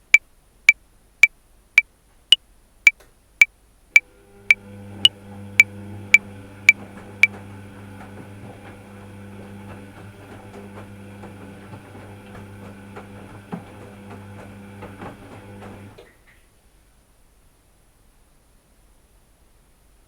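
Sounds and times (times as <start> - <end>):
washing machine motor hum: 4.0 - 16.2.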